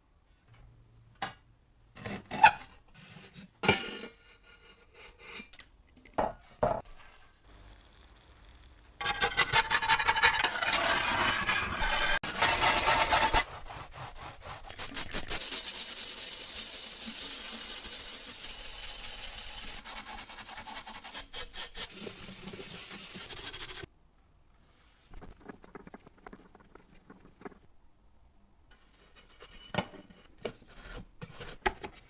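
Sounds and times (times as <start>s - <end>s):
tool scraping a surface: 9.0s - 16.0s.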